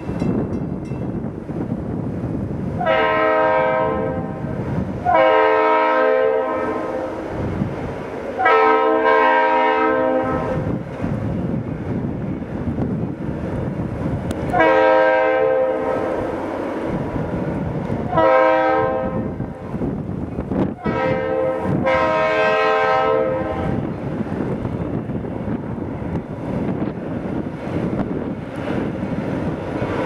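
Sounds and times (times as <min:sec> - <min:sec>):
passing train rumble: 0:00.0 - 0:30.0
locomotive air horn blasts: 0:02.8 - 0:07.3, 0:08.4 - 0:10.7, 0:14.5 - 0:16.2, 0:18.1 - 0:19.6, 0:20.8 - 0:23.9.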